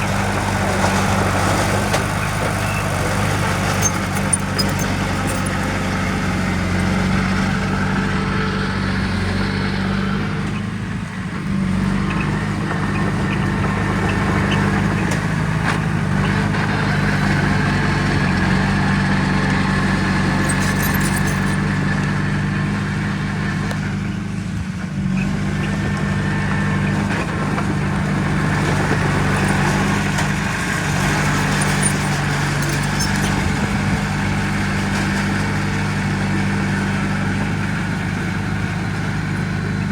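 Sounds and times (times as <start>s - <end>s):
heavy machinery diesel engine: 0.0s - 39.9s.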